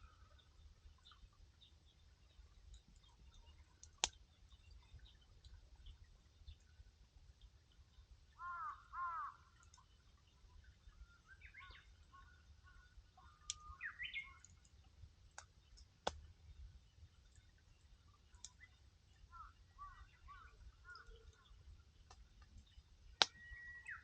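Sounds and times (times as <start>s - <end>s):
campfire pops: 3.8s - 4.2s, 13.4s - 13.8s, 15.3s - 16.3s, 22.0s - 23.4s
bird chirps: 10.9s - 14.7s, 18.3s - 21.6s, 22.6s - 24.0s.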